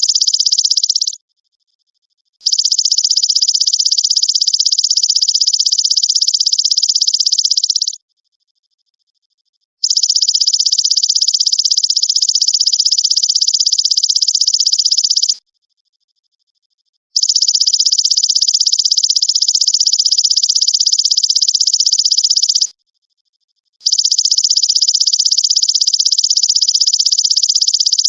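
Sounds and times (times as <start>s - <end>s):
grasshopper pulsed trill: 0.0s - 1.2s, 2.4s - 8.0s, 9.8s - 15.4s, 17.2s - 22.7s, 23.8s - 28.0s.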